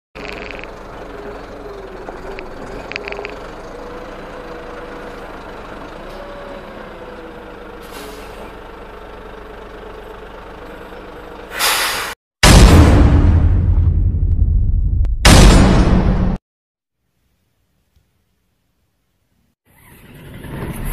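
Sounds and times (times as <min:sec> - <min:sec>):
concrete mixer truck running: 0:00.2 - 0:12.0
loud bang: 0:12.4 - 0:16.4.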